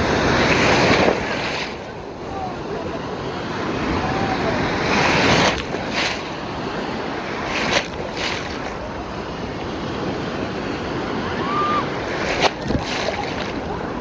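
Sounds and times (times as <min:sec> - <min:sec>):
waves breaking on beach: 0:00.0 - 0:14.0
wind buffeting microphone: 0:00.0 - 0:14.0.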